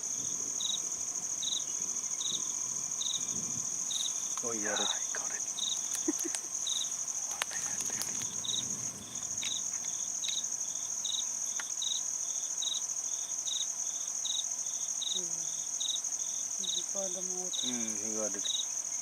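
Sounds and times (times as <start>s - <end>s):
insect chirping in short bursts: 0.0s - 19.0s
insect high pulsed trill: 0.0s - 19.0s.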